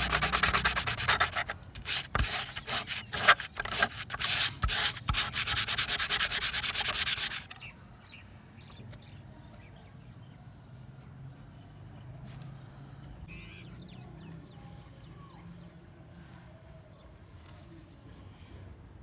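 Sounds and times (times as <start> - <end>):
abrasive rubbing on knife blade: 0.0 - 7.7.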